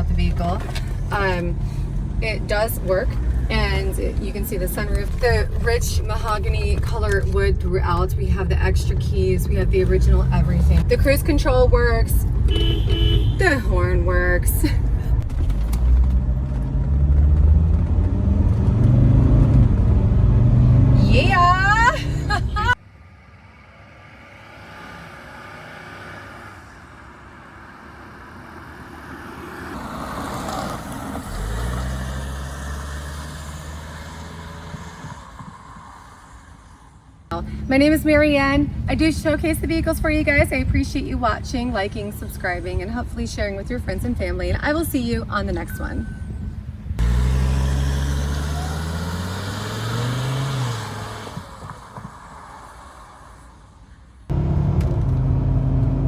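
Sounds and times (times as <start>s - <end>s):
car engine driving: 0.0s - 56.0s.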